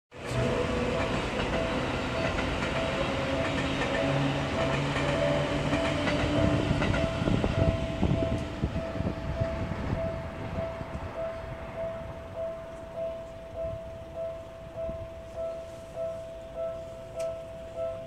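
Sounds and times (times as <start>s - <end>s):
train wheels clicking over rail joints: 0.2s - 11.1s
level crossing warning bell: 0.2s - 18.0s.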